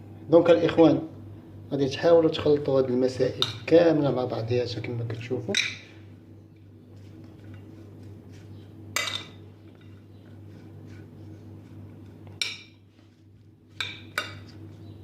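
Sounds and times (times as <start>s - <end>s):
steady low hum: 0.0s - 15.0s
utensil clinking against a dish: 9.0s - 10.4s, 12.3s - 12.8s.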